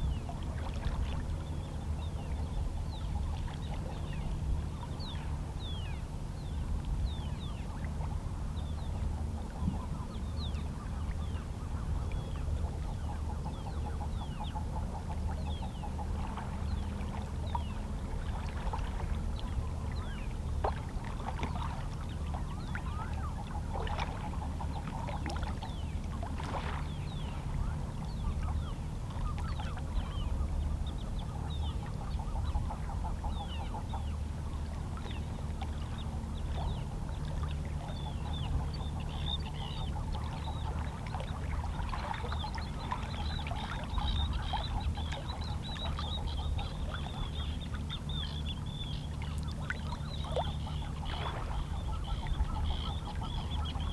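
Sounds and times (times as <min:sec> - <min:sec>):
steady low hum: 0:00.0 - 0:53.9
seabirds calling: 0:21.6 - 0:53.9.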